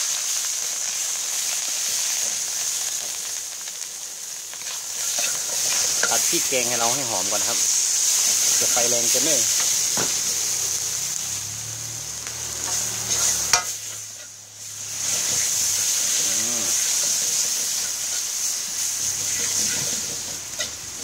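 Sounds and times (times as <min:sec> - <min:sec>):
paste sizzling in hot oil: 0:00.0 - 0:21.0
spatula scraping wok: 0:04.5 - 0:21.0.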